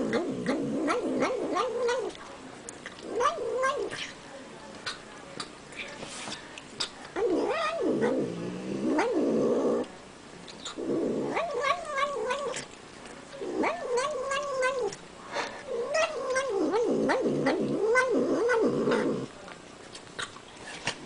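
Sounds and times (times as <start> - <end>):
cat moaning while eating: 0.0 - 2.2, 2.9 - 4.1, 7.2 - 9.9, 10.6 - 12.7, 13.4 - 19.4.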